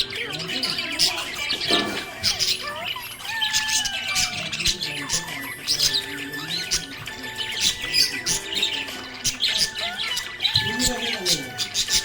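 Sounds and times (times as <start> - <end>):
budgerigar chirping and warbling: 0.0 - 12.0.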